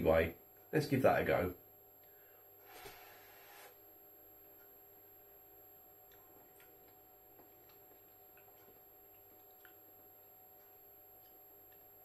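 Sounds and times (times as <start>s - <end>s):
mouth clicks from chewing food: 7.6s - 9.9s.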